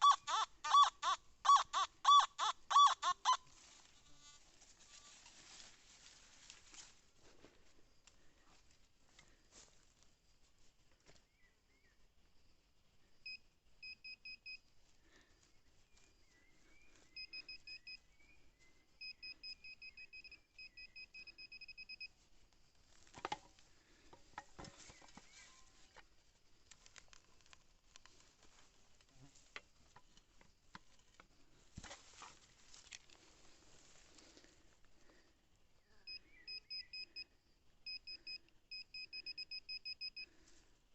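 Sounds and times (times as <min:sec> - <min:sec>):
metal detector beeping: 0:00.0 - 0:03.5, 0:13.2 - 0:14.6, 0:17.1 - 0:18.1, 0:19.0 - 0:22.2, 0:36.1 - 0:40.4
scuffing and rustling: 0:03.5 - 0:07.7, 0:31.7 - 0:34.5.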